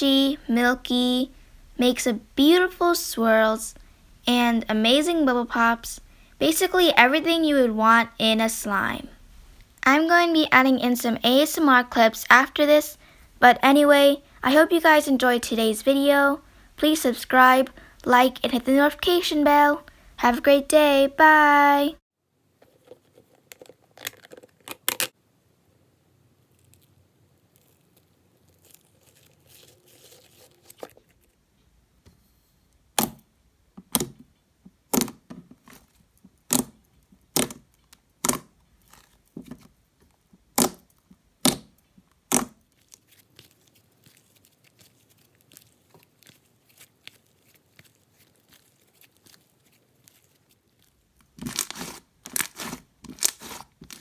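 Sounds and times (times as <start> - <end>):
slime squishing: 40.5 - 54.0.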